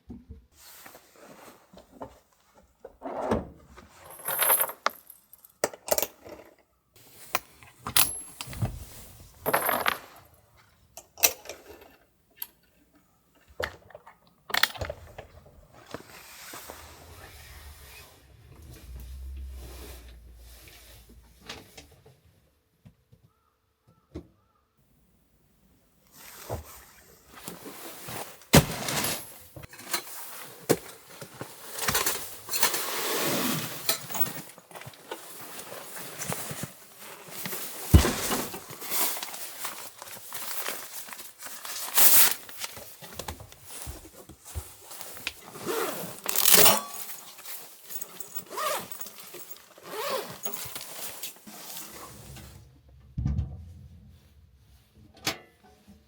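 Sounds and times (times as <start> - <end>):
objects knocking and scraping: 7.3 - 10.4, 33.6 - 56.0.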